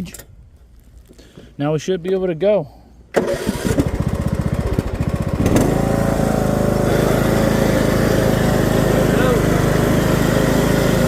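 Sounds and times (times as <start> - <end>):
mower engine cranking and starting: 3.1 - 11.0.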